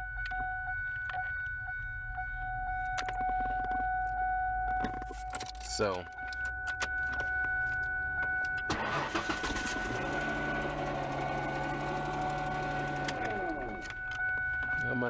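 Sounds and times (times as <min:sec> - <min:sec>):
steady high-pitched tone: 0:00.0 - 0:15.0
car starter motor cranking: 0:08.4 - 0:14.2.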